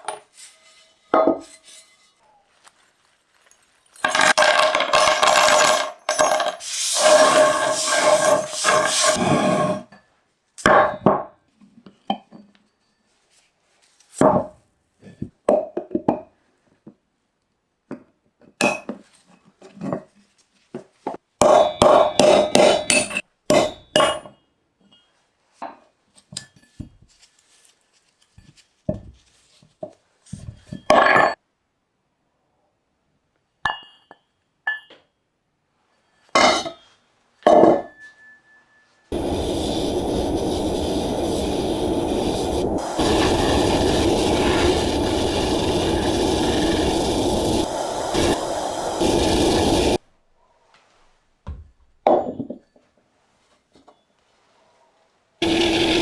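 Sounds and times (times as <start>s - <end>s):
metal parts clinking: 0.0s - 9.2s
power tool whining: 6.6s - 9.8s, 39.2s - 50.0s, 55.4s - 56.0s.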